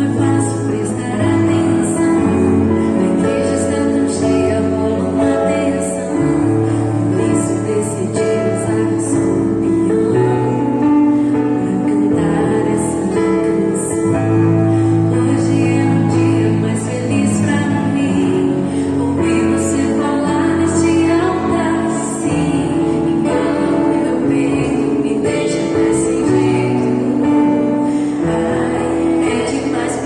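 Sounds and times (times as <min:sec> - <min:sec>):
slow soft gospel music: 0:00.0 - 0:30.0.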